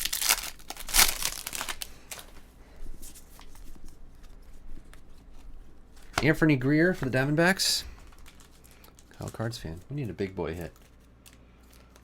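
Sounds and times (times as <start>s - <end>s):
card pack wrappers crinkling: 0.0s - 2.4s, 5.9s - 12.0s.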